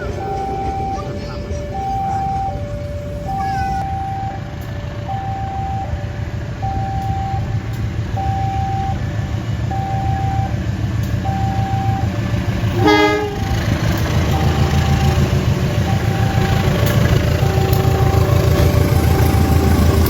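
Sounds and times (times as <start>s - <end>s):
level crossing two-tone alarm: 0.0s - 12.2s, 14.2s - 20.0s
low train rumble: 0.0s - 20.0s
train horn blast: 12.7s - 14.6s.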